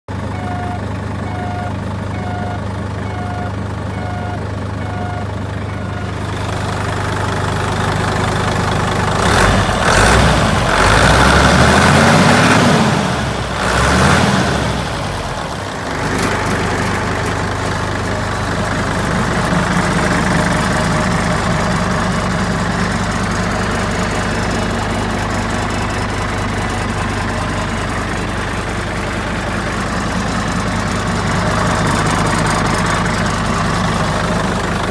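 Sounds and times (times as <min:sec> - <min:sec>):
truck diesel engine idling and revving: 0:00.1 - 0:34.9
warning beeps: 0:00.3 - 0:06.2.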